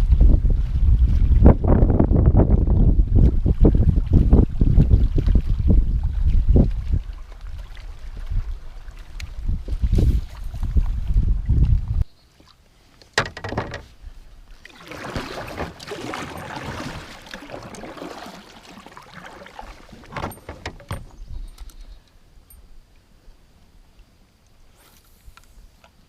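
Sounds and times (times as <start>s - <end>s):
wind gust on microphone: 0.0s - 12.1s
water splashing: 3.2s - 11.8s, 13.2s - 21.6s
gear clunking against kayak: 13.0s - 14.0s, 15.0s - 18.0s, 19.9s - 22.6s.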